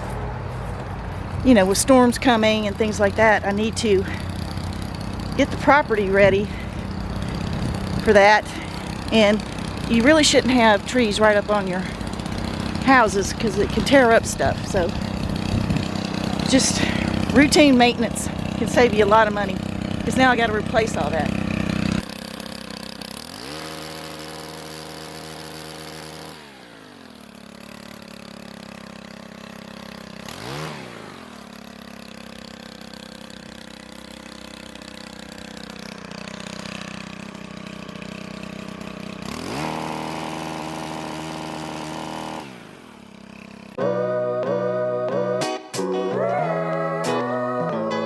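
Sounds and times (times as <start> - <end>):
chainsaw engine revving: 0.0 - 48.0
music: 43.8 - 48.0.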